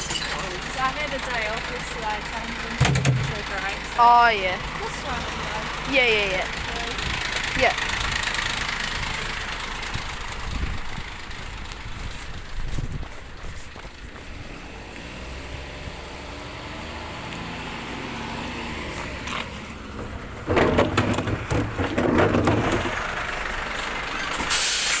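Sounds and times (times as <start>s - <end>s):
glass clattering and crashing: 0.0s - 0.6s
diesel engine revving: 0.0s - 25.0s.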